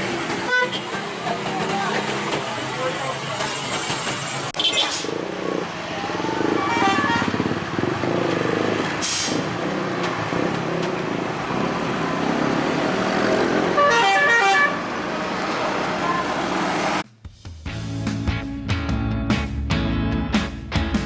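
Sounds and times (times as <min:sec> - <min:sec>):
heavy vehicle engine running: 0:00.0 - 0:17.0
vehicle horn blasts: 0:06.4 - 0:07.6, 0:13.6 - 0:14.9.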